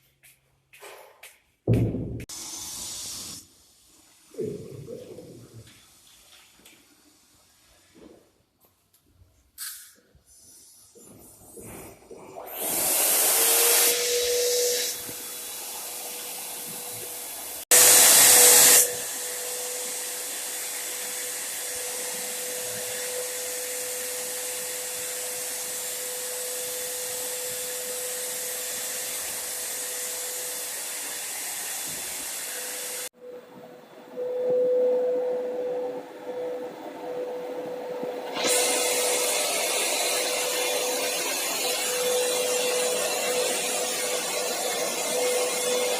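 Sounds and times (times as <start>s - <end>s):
electric spray gun hissing: 2.3s - 3.5s, 12.6s - 33.1s, 38.2s - 45.9s.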